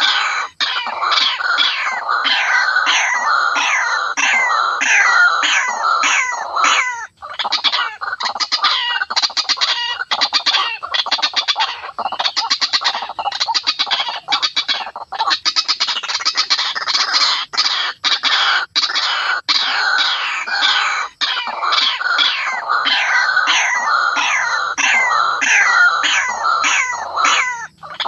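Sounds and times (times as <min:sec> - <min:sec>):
waterhen calling: 0:00.0 - 0:28.0.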